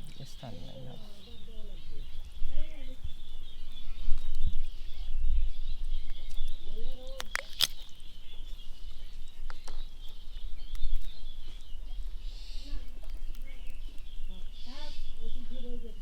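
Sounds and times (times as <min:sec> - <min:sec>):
sharp clicks: 0:07.1 - 0:08.0.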